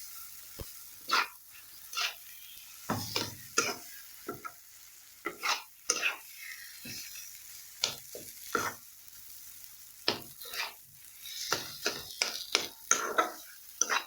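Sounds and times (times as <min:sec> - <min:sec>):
faint sizzle: 0:00.0 - 0:14.0
spatula scraping and knocking a pan: 0:01.1 - 0:02.2, 0:02.9 - 0:04.6, 0:05.2 - 0:06.2, 0:06.8 - 0:07.2, 0:07.8 - 0:08.8, 0:10.1 - 0:14.0.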